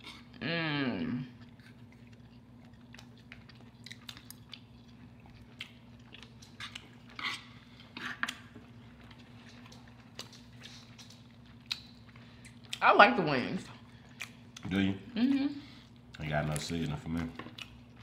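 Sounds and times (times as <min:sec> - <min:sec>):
chewing and crunching: 0:01.2 - 0:12.8, 0:13.6 - 0:18.0.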